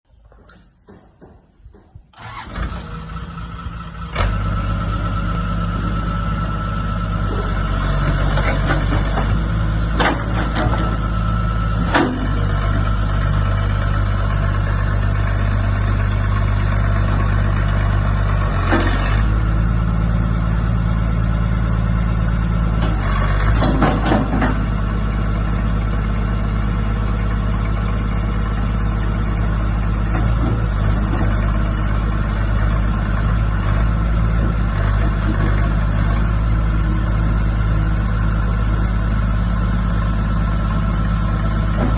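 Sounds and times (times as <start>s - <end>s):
excavator diesel engine running: 0.1s - 41.9s
short knocks and clanks: 0.2s - 2.2s, 22.8s - 24.7s.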